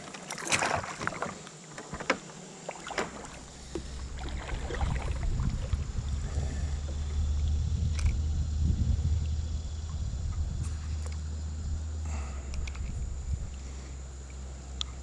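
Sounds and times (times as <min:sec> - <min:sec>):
water splashing: 0:00.0 - 0:11.2
wind rumble on microphone: 0:03.1 - 0:15.0.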